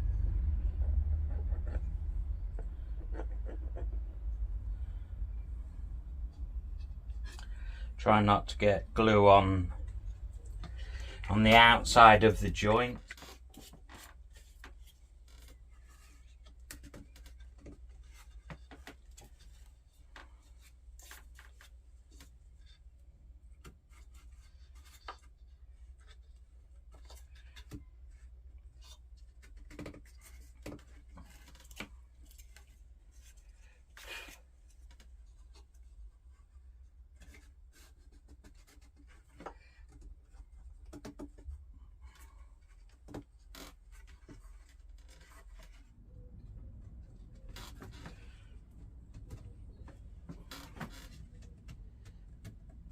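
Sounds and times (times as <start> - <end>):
steady low hum: 0.0 - 13.1
taps and rubbing of wooden pieces: 37.2 - 45.9.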